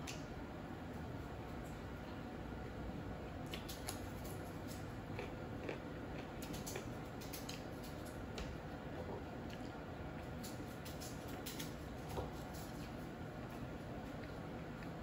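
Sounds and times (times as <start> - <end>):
person chewing: 3.4 - 8.1.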